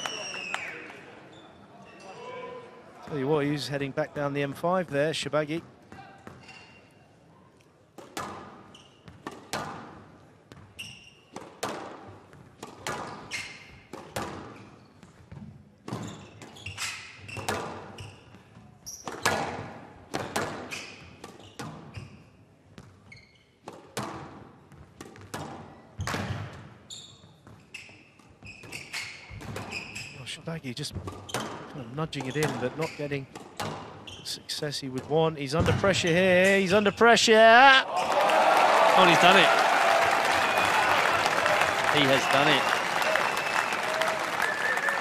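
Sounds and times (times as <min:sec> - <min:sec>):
shoe squeaks: 0:00.0 - 0:02.3, 0:06.3 - 0:07.0, 0:08.6 - 0:09.2, 0:10.6 - 0:11.4, 0:13.1 - 0:13.9, 0:15.9 - 0:19.3, 0:20.7 - 0:23.6, 0:26.8 - 0:30.4, 0:31.2 - 0:31.6, 0:32.2 - 0:34.5
squash ball hits: 0:09.2 - 0:09.9.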